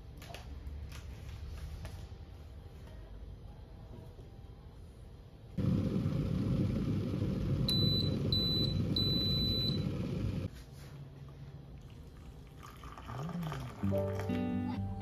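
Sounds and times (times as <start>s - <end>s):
electric kettle rumbling: 5.6s - 10.5s
kettle base beeping: 7.5s - 10.5s.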